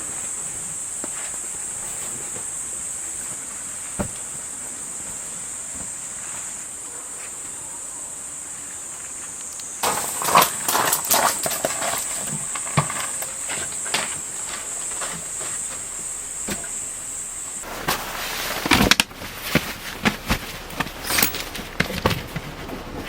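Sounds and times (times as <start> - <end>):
gear clattering and clicking: 18.6 - 23.0.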